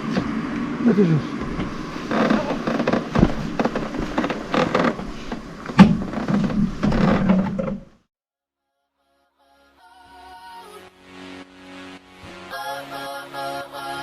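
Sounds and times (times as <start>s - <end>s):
close knocks and clunks: 1.4s - 8.0s
rustling: 1.5s - 7.9s.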